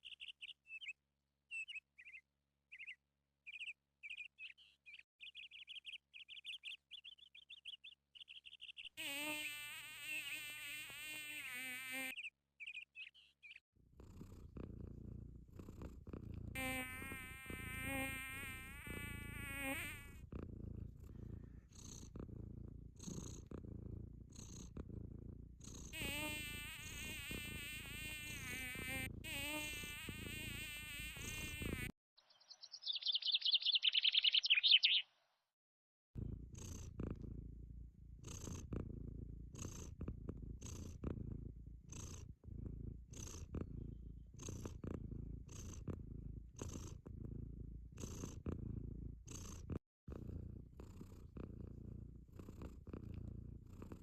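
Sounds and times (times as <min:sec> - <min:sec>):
cat purring: 0:13.8 - 0:31.9, 0:36.2 - 0:54.0
wavering buzz: 0:16.6 - 0:20.2, 0:26.0 - 0:31.9.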